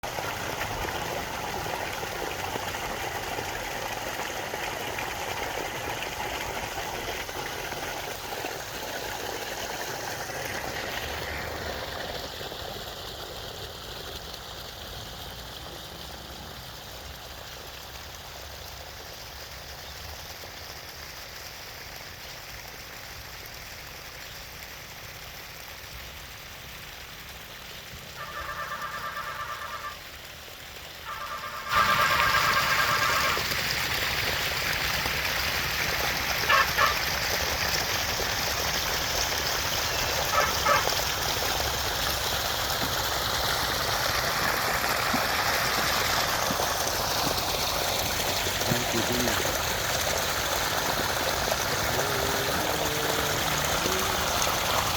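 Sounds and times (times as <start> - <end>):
heavy rain falling: 28.1 - 30.0, 31.0 - 33.5, 46.0 - 54.9.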